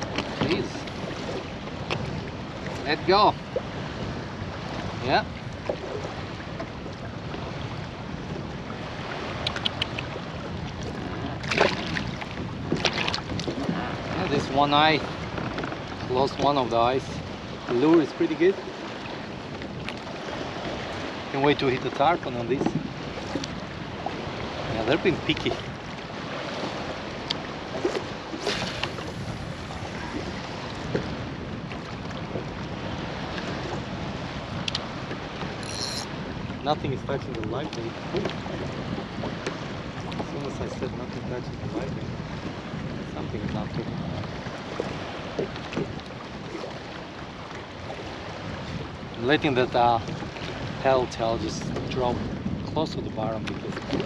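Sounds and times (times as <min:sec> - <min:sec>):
water: 0:00.0 - 0:54.0
wind: 0:00.0 - 0:54.0
sharp knock or splash: 0:28.4 - 0:29.2.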